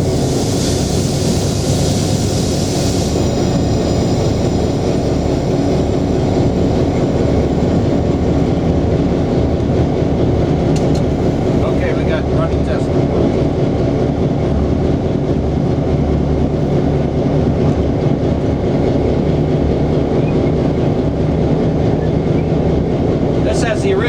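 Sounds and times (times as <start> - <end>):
air hissing: 0.0 - 4.5
diesel engine rumbling: 0.0 - 24.0.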